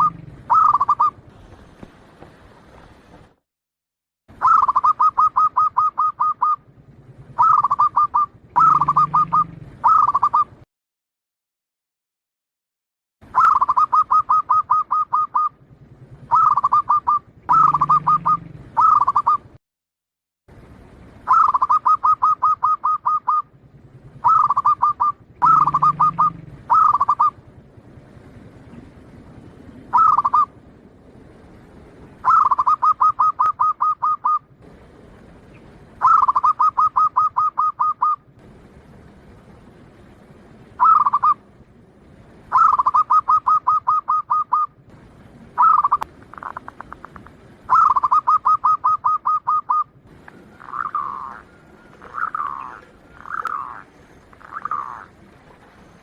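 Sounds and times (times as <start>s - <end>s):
dove cooing staccato notes: 0.0s - 2.3s, 4.4s - 10.6s, 13.3s - 19.6s, 21.3s - 23.5s, 24.1s - 27.4s, 29.9s - 30.6s, 32.2s - 38.2s, 40.8s - 41.4s, 42.5s - 44.8s, 45.5s - 55.8s.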